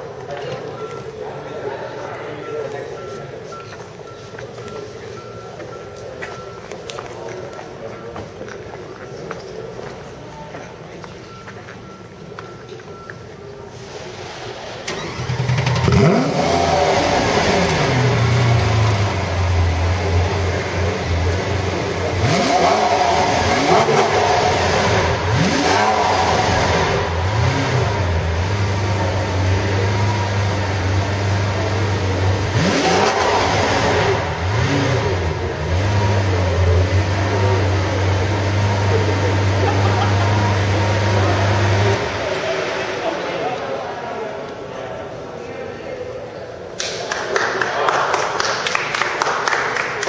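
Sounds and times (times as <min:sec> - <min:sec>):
car engine starting: 0:13.6 - 0:45.3
engine throttle revs: 0:13.7 - 0:44.7
car engine idling: 0:13.8 - 0:45.2.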